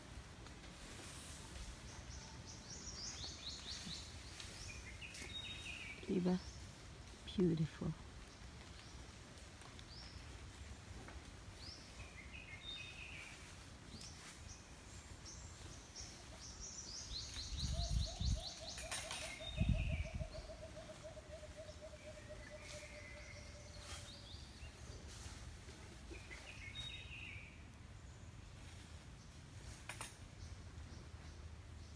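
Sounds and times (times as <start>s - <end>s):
birds chirping: 1.5s - 9.2s, 11.5s - 25.1s, 26.0s - 29.4s.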